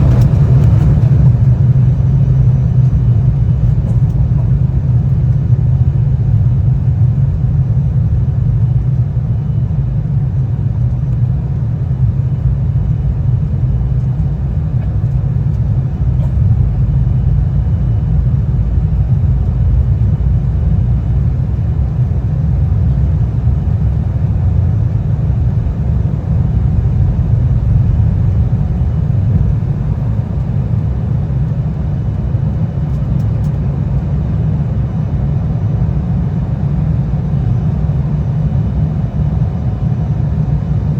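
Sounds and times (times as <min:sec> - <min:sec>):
rushing air: 0:00.0 - 0:02.6
jet engines rumbling: 0:00.0 - 0:40.9.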